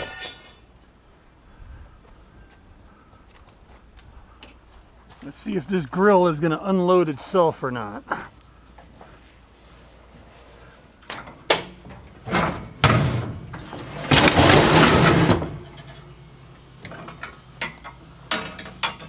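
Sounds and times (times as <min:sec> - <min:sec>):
metal grill scraping slide: 0:13.8 - 0:16.0.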